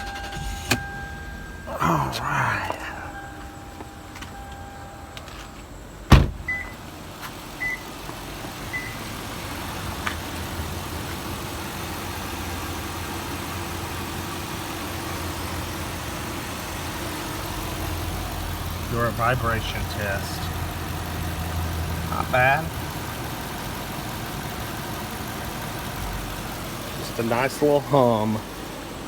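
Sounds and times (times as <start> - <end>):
car engine idling: 0.0 - 29.0
sharp thump: 6.1 - 6.5.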